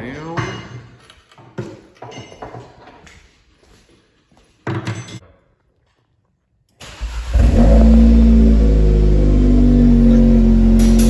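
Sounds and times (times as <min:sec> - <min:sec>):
loud car engine: 0:06.8 - 0:11.0.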